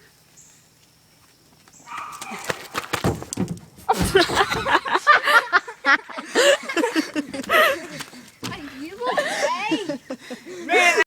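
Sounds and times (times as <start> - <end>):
knocks and scuffs: 1.2 - 4.8, 7.3 - 8.7
heavy thump: 2.8 - 4.8
person laughing breathlessly: 3.9 - 8.3, 9.1 - 11.0.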